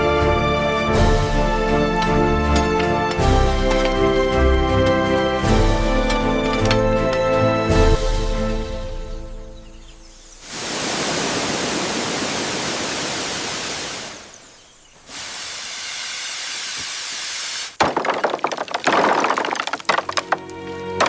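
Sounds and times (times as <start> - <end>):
steady hissing noise: 9.9 - 17.8.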